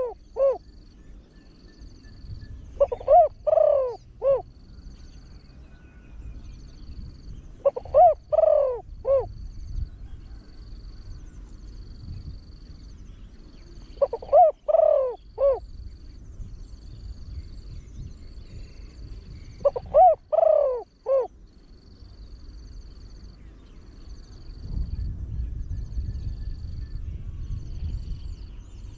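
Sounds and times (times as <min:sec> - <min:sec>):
dove cooing: 0:00.0 - 0:00.8, 0:02.7 - 0:04.6, 0:07.5 - 0:09.4, 0:13.7 - 0:15.7, 0:18.7 - 0:21.4.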